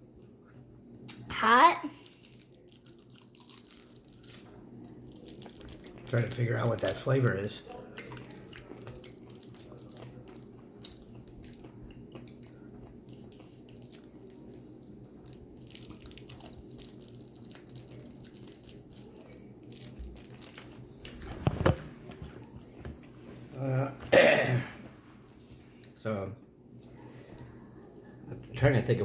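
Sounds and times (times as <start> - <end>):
steady low hum: 0.0 - 29.0
person chewing: 2.0 - 6.9, 7.7 - 22.6.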